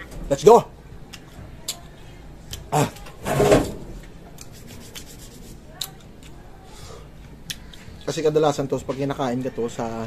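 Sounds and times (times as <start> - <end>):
crunching and chewing mango: 7.2 - 8.2.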